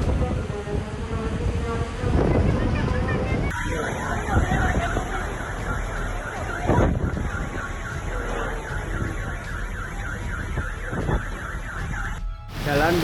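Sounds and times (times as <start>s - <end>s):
street noise: 0.0s - 13.0s
wind: 0.0s - 13.0s
car alarm warbling: 3.5s - 13.0s.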